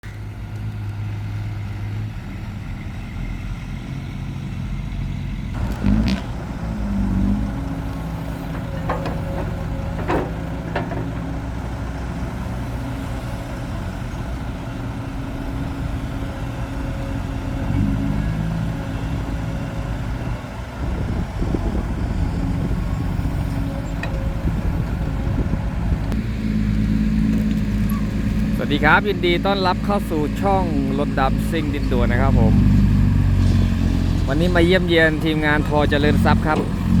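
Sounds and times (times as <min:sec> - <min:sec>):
heavy diesel engine running: 0:00.0 - 0:37.0
sharp knocks: 0:08.2 - 0:11.7.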